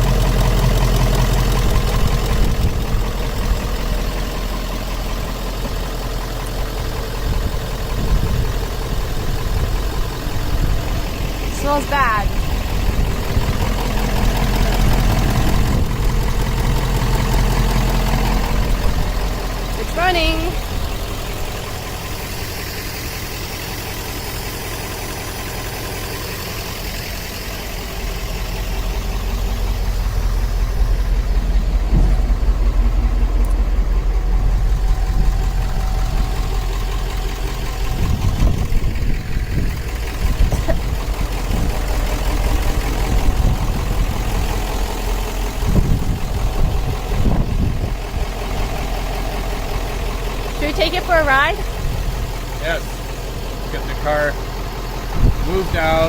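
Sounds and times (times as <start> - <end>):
diesel engine idling: 0.0 - 56.0
low thumps: 28.2 - 36.7.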